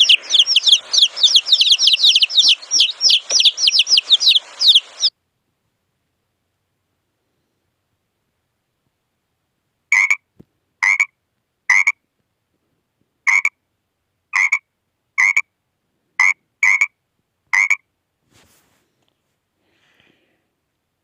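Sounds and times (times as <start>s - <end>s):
animal calling sharply: 0.0s - 5.1s.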